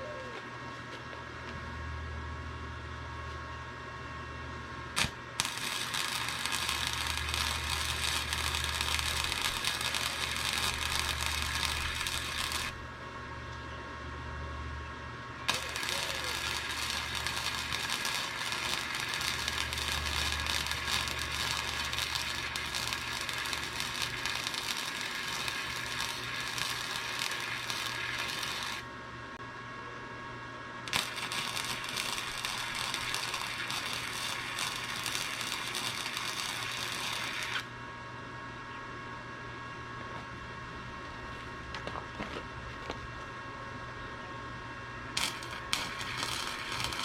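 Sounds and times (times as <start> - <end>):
welder arc crackling: 4.9 - 13.0, 15.4 - 29.0, 30.8 - 37.7, 45.1 - 47.0.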